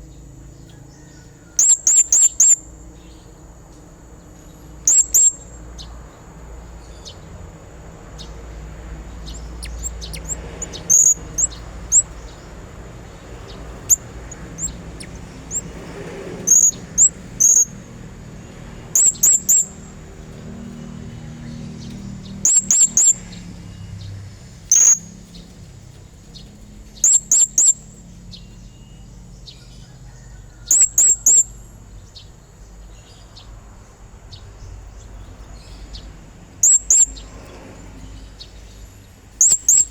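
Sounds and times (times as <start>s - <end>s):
parrot high-pitched chirps: 1.6s - 2.6s, 4.9s - 5.4s, 9.3s - 12.1s, 16.4s - 17.8s, 19.0s - 19.9s, 22.4s - 23.3s, 24.7s - 25.1s, 27.0s - 27.8s, 30.7s - 31.5s, 36.6s - 37.1s, 39.4s - 39.9s.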